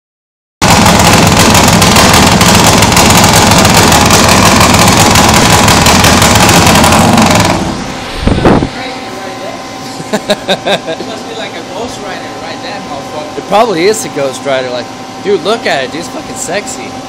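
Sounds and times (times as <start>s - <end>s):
loud motorcycle engine crackling: 0.6s - 8.0s.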